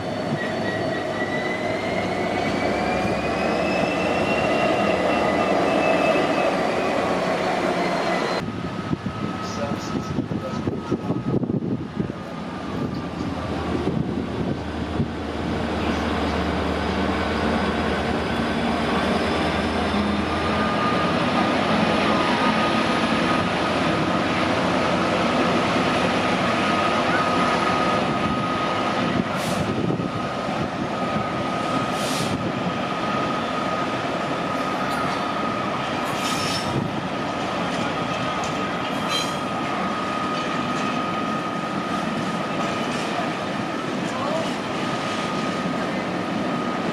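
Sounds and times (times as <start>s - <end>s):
train wheels squealing: 0.0s - 8.4s, 9.1s - 11.4s, 15.7s - 23.5s, 34.5s - 36.8s, 37.6s - 43.0s
train running on rails: 0.0s - 46.9s.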